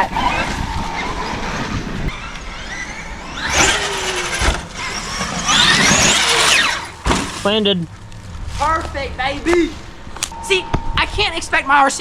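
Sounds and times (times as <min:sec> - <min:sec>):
rc truck electric motor whine: 0:00.2 - 0:07.0.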